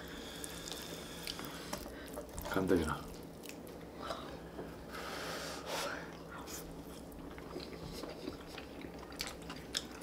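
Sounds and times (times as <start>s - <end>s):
chewing and wet mouth sounds: 3.1s - 3.8s, 6.1s - 10.0s.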